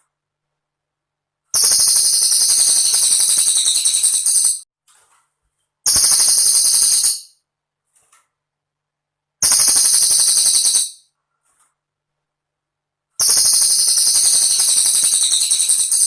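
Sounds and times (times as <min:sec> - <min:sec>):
bird singing high trills: 0:01.6 - 0:04.6, 0:13.2 - 0:16.0.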